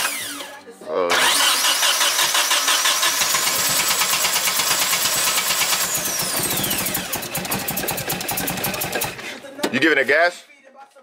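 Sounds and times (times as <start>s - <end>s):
engine running: 1.1s - 9.2s.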